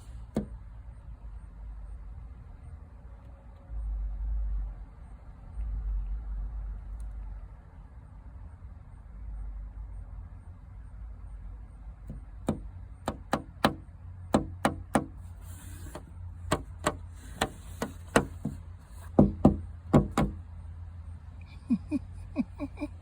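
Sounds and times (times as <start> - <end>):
sharp taps: 15.8 - 20.4.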